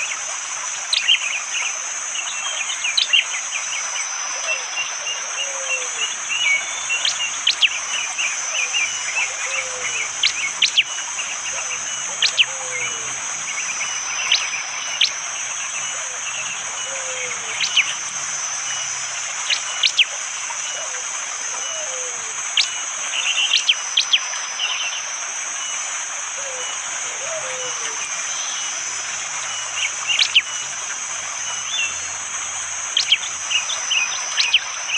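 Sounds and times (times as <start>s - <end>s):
insect drone: 0.0s - 34.9s
bird sharp piercing calls: 4.4s - 25.1s, 26.4s - 34.9s
bird low falling whistle: 5.4s - 24.8s.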